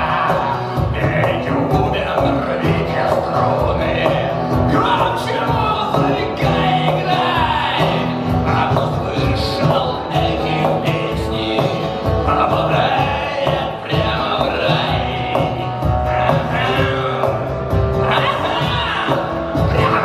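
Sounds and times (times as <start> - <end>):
acoustic guitar music with beat: 0.0 - 20.0.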